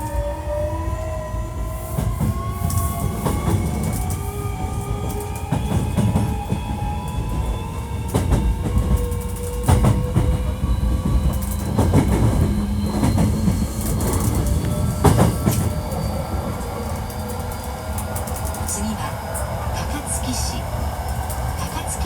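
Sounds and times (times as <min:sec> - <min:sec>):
train wheels rumbling on rails: 0:00.0 - 0:22.0
wheels clacking over rail joints: 0:07.4 - 0:19.8.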